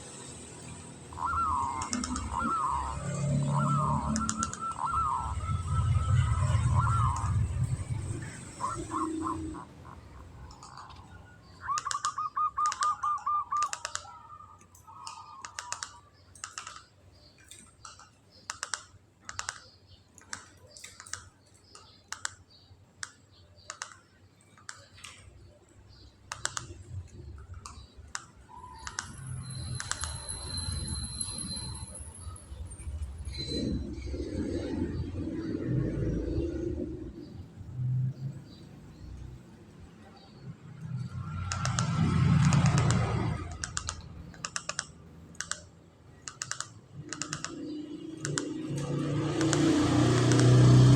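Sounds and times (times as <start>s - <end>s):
dove rattling trill: 0.1s - 11.0s
sharp clicks: 1.8s - 2.7s, 4.0s - 5.2s, 10.5s - 30.5s, 40.8s - 50.9s.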